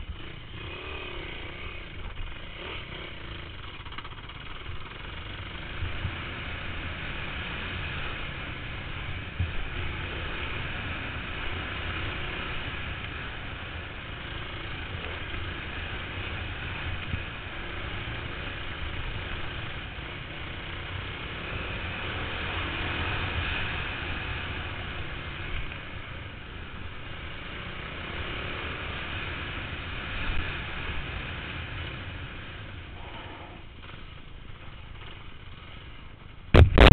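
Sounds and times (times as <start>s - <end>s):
motorbike engine running: 0.0s - 36.9s.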